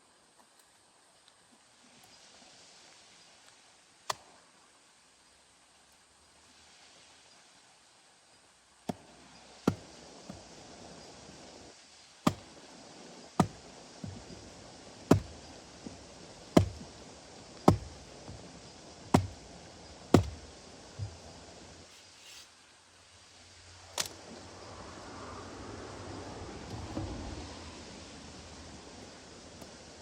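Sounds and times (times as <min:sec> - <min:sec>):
blade chopping into wood: 0:09.7 - 0:10.4, 0:12.3 - 0:12.5, 0:13.4 - 0:14.4, 0:15.1 - 0:15.4, 0:16.5 - 0:17.0, 0:17.6 - 0:18.5, 0:19.1 - 0:19.5, 0:20.1 - 0:21.3.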